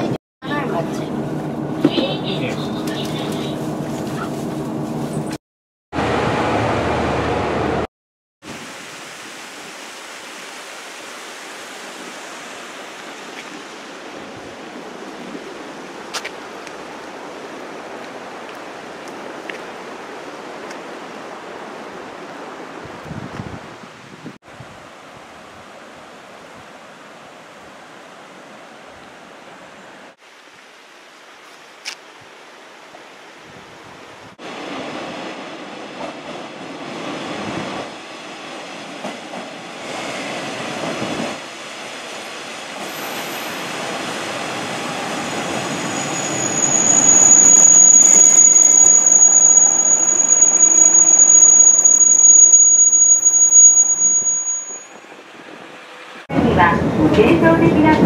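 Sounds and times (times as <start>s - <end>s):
diesel railcar rumble: 0.0s - 5.4s, 34.5s - 53.2s
high steady brake squeal: 44.8s - 55.0s.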